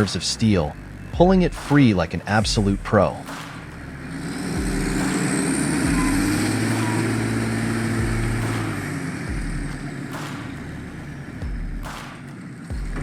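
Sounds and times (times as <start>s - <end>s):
excavator diesel engine running: 3.8s - 11.4s.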